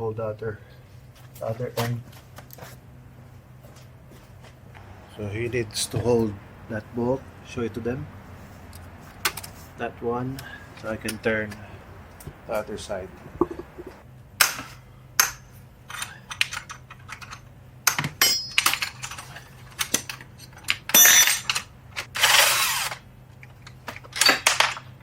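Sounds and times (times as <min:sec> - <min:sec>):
ringing metallic clatter: 0:18.2 - 0:19.4.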